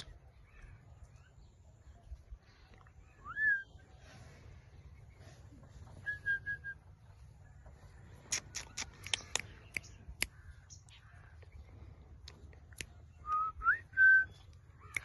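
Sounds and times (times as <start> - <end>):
parakeet clicking chirps: 8.3 - 10.5.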